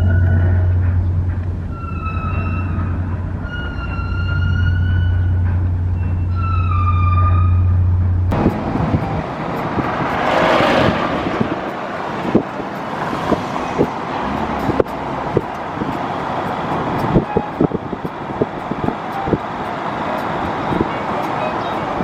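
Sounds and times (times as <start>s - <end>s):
street traffic noise: 0.0s - 22.0s
police siren wailing: 1.8s - 5.4s
vehicle passing: 7.5s - 22.0s.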